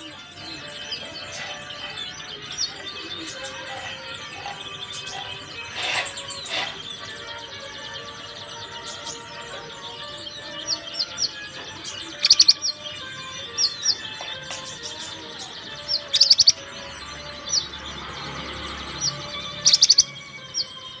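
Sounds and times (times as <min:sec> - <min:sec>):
bird whistled calls: 0:12.1 - 0:14.0, 0:14.6 - 0:16.7, 0:19.0 - 0:21.0.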